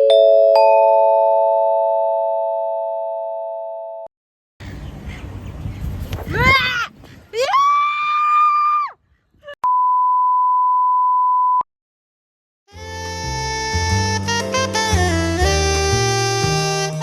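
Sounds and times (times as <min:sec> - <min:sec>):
music: 0:12.7 - 0:17.0.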